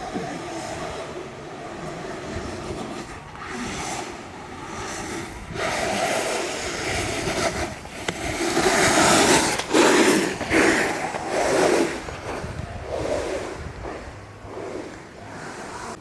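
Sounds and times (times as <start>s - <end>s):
board wheels rolling on pavement: 0.0s - 16.0s
wind noise on microphone: 0.0s - 16.0s.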